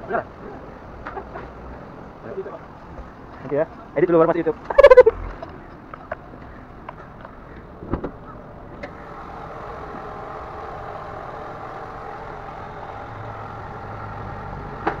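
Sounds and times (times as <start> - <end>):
car engine idling: 6.0 - 15.0.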